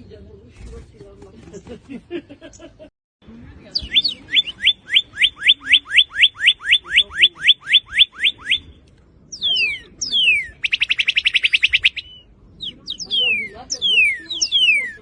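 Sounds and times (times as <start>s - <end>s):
bird singing whistles and trills: 3.7s - 15.0s.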